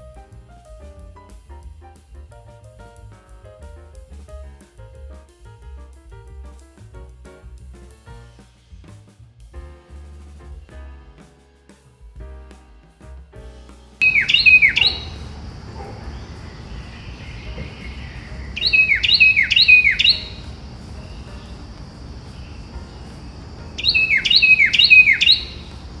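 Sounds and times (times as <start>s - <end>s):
bird calling downward notes: 14.0s - 26.0s
steady high hiss: 14.1s - 26.0s.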